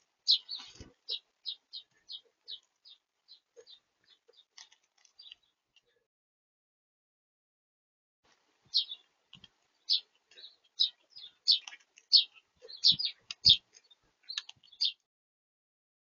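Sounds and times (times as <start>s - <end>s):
small bird chirping: 0.2s - 6.0s, 8.7s - 15.1s.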